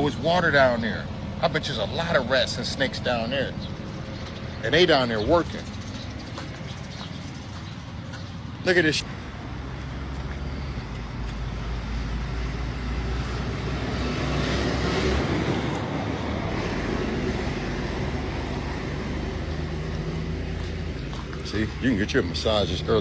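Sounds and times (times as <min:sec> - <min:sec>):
vehicle engine passing by: 0:00.0 - 0:23.0.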